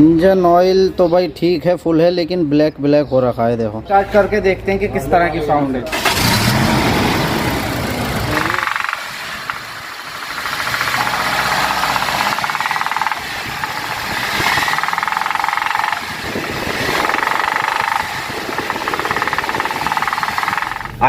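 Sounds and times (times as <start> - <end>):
car engine revving: 5.9 - 21.0
rapid engine knock: 7.5 - 21.0.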